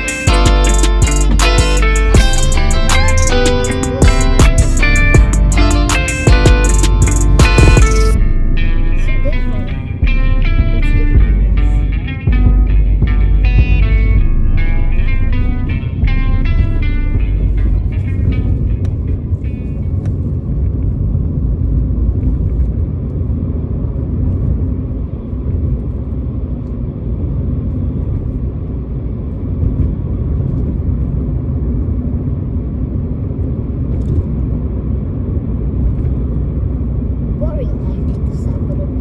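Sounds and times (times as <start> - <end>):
music: 0.0 - 20.4
car cabin rumble: 0.0 - 39.0.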